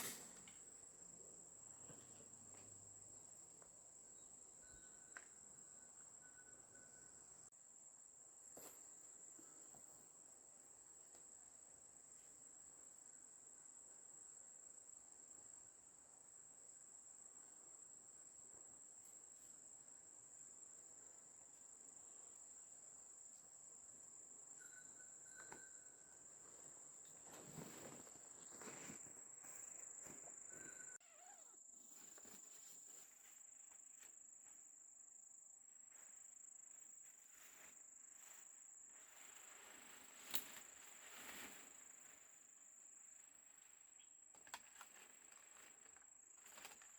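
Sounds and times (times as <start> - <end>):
rustling: 26.6 - 34.1, 37.1 - 42.5.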